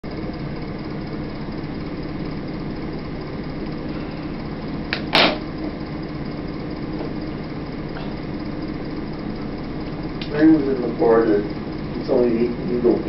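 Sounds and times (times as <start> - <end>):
steady low hum: 0.0 - 13.0
sharp knock: 5.0 - 5.4.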